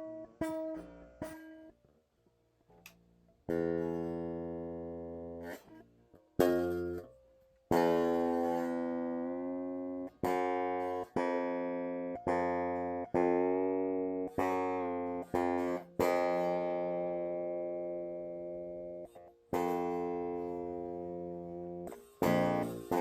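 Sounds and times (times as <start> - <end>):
electric guitar string plucked: 7.7 - 23.0.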